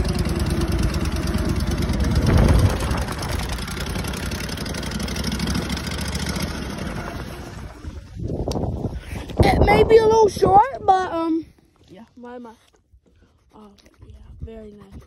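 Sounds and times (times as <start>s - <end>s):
tractor engine idling: 0.0s - 8.4s.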